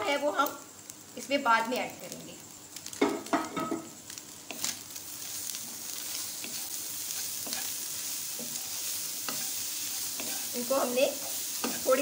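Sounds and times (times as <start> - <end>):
vegetables sizzling in oil: 0.0 - 12.0
spatula scraping: 4.5 - 12.0.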